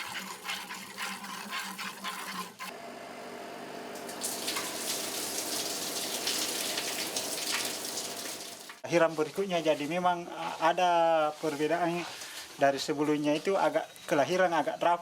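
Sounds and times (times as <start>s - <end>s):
milk squirting into a pail: 4.0s - 8.8s.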